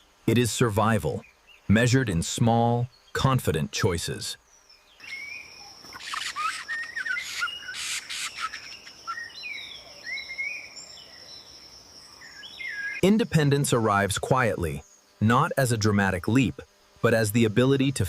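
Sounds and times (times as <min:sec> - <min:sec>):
small birds chirping: 0:00.0 - 0:18.0
high-pitched insect drone: 0:05.0 - 0:18.0.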